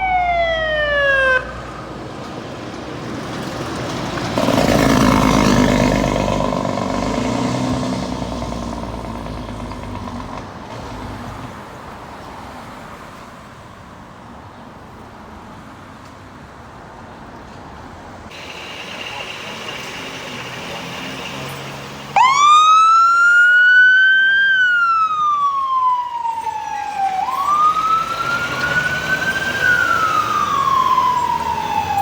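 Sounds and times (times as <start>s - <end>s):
traffic background: 0.0s - 32.0s
vehicle engine passing by: 3.0s - 11.7s, 18.4s - 32.0s.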